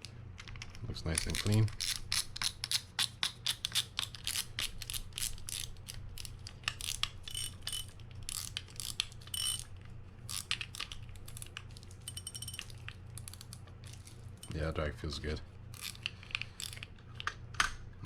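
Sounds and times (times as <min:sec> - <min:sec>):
fishing reel ratchet clicks: 0:01.2 - 0:09.6, 0:10.3 - 0:11.5, 0:15.7 - 0:16.8.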